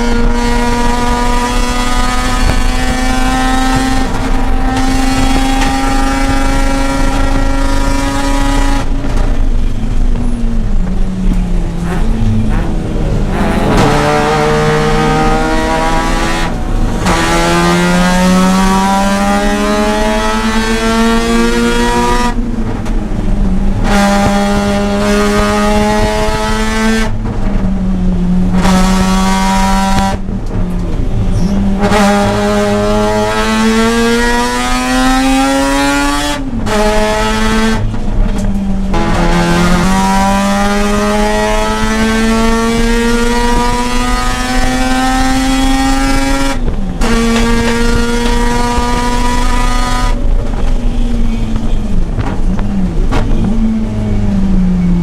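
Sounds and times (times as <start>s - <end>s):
rotary engine revving: 0.0s - 9.4s, 10.8s - 23.0s.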